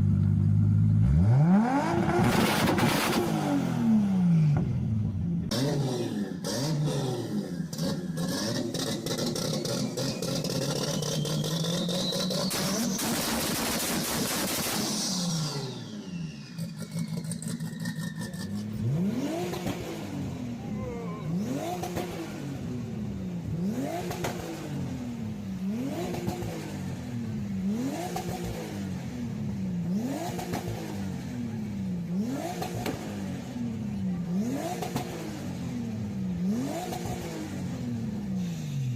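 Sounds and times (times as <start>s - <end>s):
car engine revving: 0.0s - 38.9s
turbo whistle: 10.5s - 13.2s.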